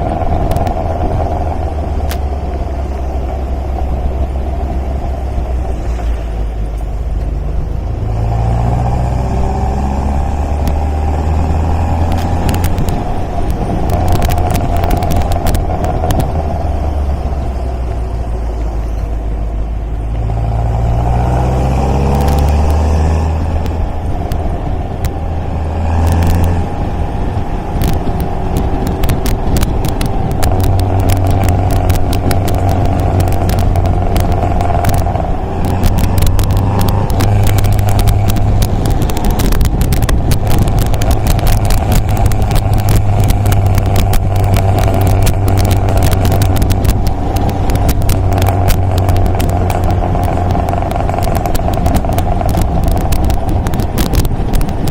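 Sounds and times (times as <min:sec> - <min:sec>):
car engine accelerating: 0:00.0 - 0:54.9
sharp clicks: 0:27.7 - 0:54.9.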